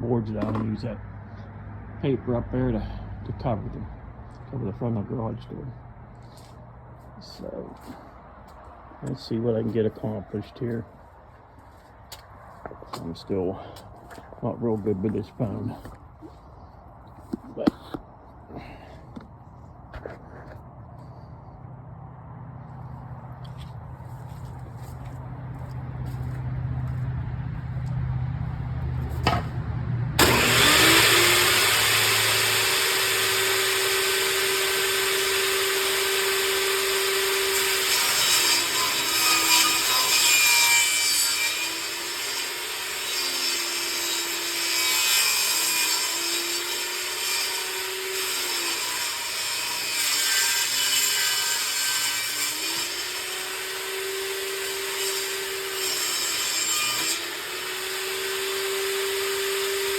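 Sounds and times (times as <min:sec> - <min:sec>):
table saw cutting wood: 0:30.2 - 0:59.9.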